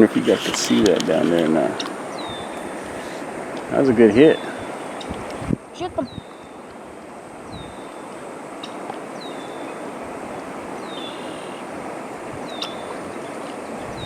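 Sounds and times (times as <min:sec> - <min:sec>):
steady rushing noise: 0:00.0 - 0:14.0
bird high downward call: 0:07.5 - 0:11.7, 0:12.4 - 0:14.0.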